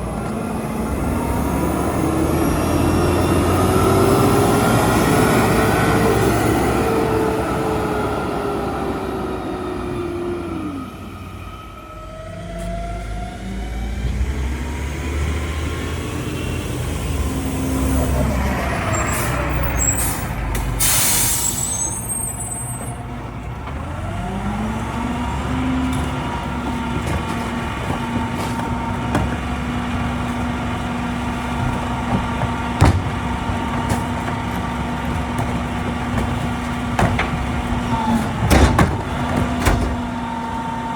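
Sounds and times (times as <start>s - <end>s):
truck diesel engine revving: 0.0s - 21.4s, 23.0s - 40.9s
air brake hiss: 19.2s - 22.1s.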